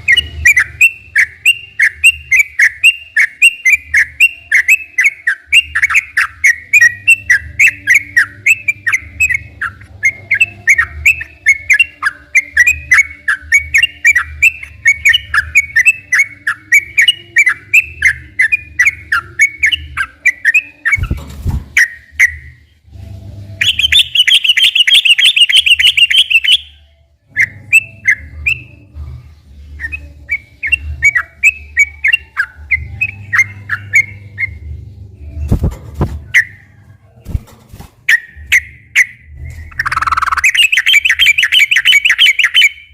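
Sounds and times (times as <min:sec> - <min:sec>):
bird singing bubbly chirps: 0:38.1 - 0:42.9.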